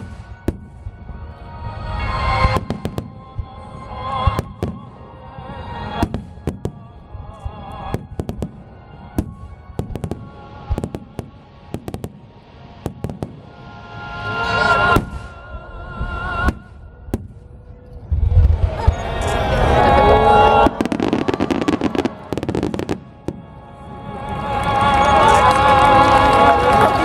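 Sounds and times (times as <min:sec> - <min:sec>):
fireworks bursting: 0:00.0 - 0:01.2, 0:05.9 - 0:13.6, 0:14.9 - 0:15.4, 0:16.4 - 0:27.0.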